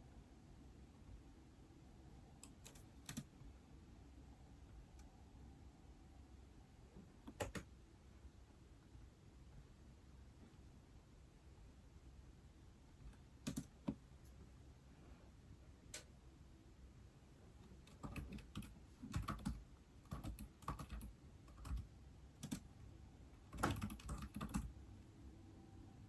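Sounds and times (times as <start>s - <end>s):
typing on tablet keyboard: 2.4s - 3.3s, 7.2s - 7.7s, 13.1s - 14.0s, 17.6s - 22.7s, 23.4s - 24.8s.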